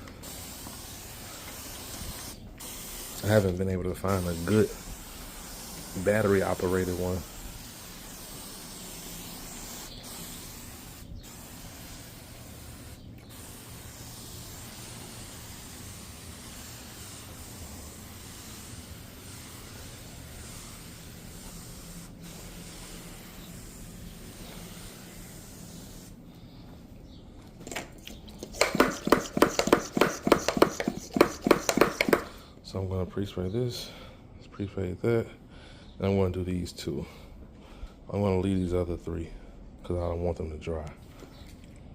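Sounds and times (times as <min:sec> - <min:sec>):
pump sprayer hissing: 0:00.0 - 0:26.2, 0:28.4 - 0:32.4
rapid short sharp sounds: 0:28.4 - 0:32.4.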